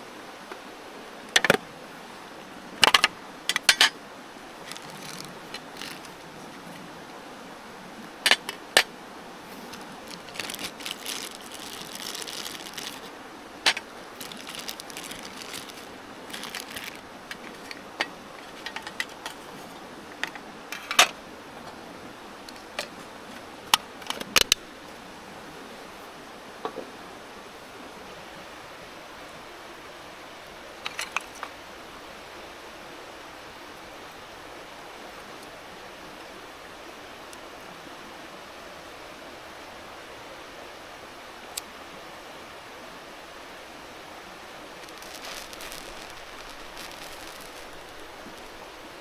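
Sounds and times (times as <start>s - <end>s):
mountain stream rushing: 0.0s - 49.0s
camp gear clicking and knocking: 1.3s - 1.6s, 2.8s - 4.0s, 4.6s - 6.8s, 8.1s - 8.9s, 13.7s - 21.8s, 22.5s - 24.6s, 30.8s - 31.5s.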